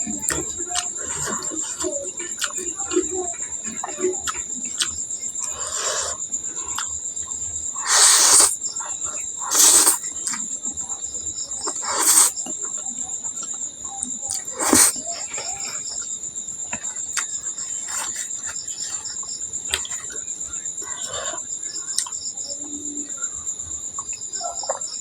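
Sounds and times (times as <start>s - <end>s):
soft chewing clicks: 0.0s - 10.9s, 11.5s - 22.8s
crickets chirring: 0.0s - 25.0s
loud noodle slurps: 7.8s - 8.6s, 9.4s - 10.0s, 11.6s - 12.4s, 14.4s - 15.0s.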